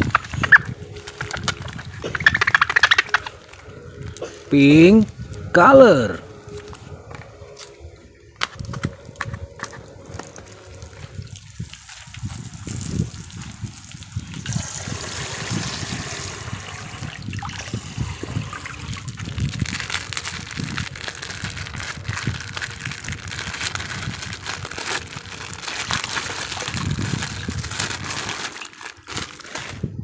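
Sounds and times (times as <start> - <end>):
water splashing and sloshing: 0.0 - 4.5, 6.2 - 29.8.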